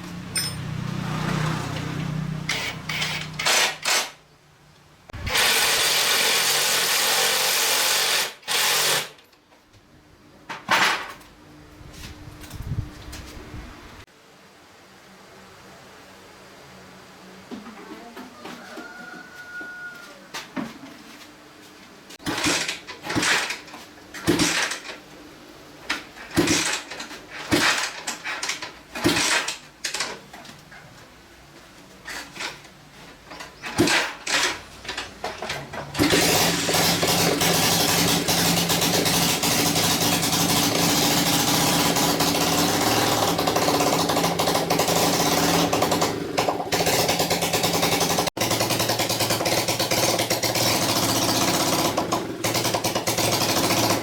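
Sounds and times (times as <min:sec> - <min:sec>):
motorcycle engine sputtering bursts: 0:22.2 - 0:23.6, 0:35.9 - 0:54.0
motorcycle engine running: 0:36.0 - 0:54.0.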